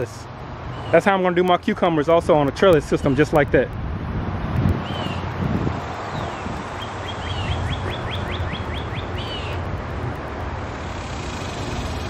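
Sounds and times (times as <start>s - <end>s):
songbird singing: 0.0s - 1.9s, 2.7s - 3.5s, 4.8s - 9.8s.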